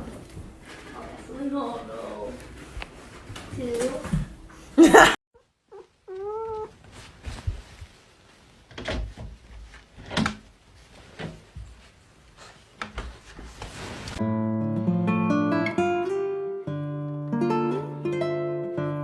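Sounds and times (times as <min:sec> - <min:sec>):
cat meowing: 0:05.4 - 0:06.8
rustling: 0:05.4 - 0:14.2.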